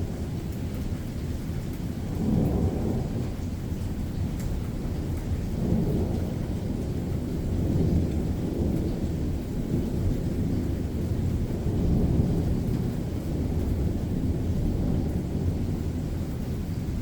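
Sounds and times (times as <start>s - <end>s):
faint rain falling: 0.0s - 17.0s
thunder rumbling: 2.0s - 17.0s.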